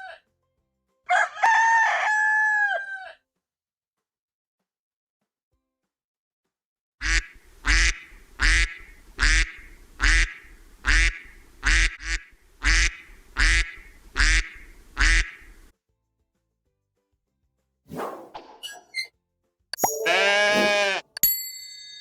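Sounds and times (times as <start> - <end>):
duck quacking: 7.0 - 15.6.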